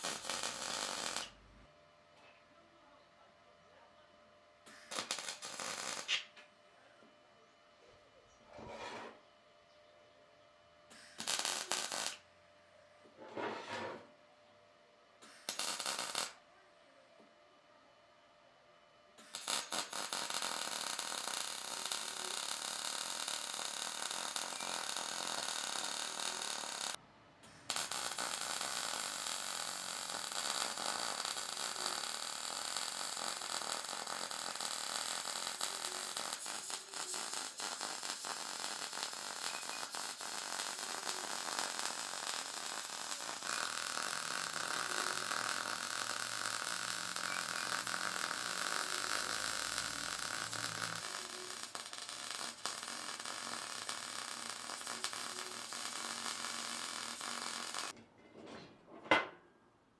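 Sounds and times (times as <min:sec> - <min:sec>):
power tool hissing: 0:27.7 - 0:57.9.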